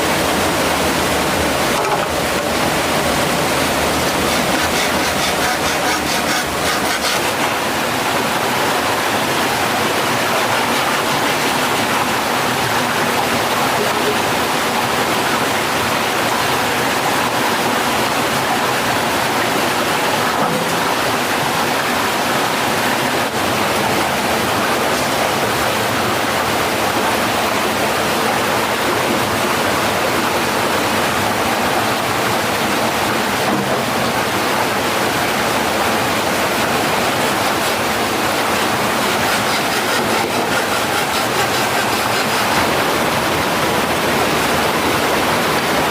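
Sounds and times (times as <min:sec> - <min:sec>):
stream water rushing over rocks: 0:00.0 - 0:45.9.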